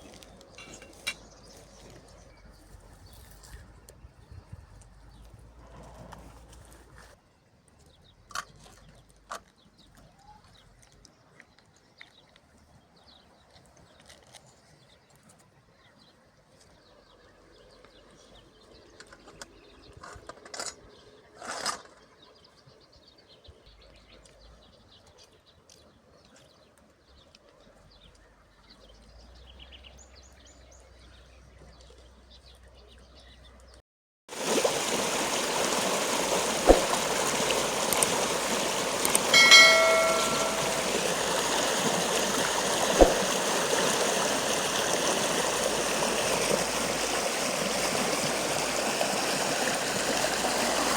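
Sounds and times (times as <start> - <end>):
rushing stream: 34.3 - 50.9
brief call: 39.1 - 41.4.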